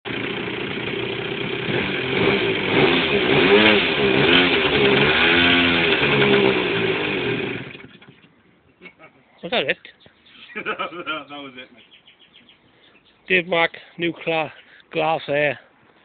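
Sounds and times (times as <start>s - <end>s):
model aircraft engine revving: 0.1s - 8.2s.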